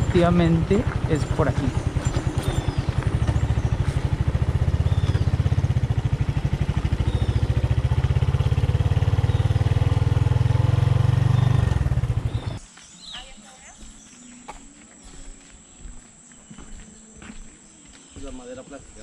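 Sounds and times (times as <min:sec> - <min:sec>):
motorcycle engine idling: 0:00.0 - 0:12.6.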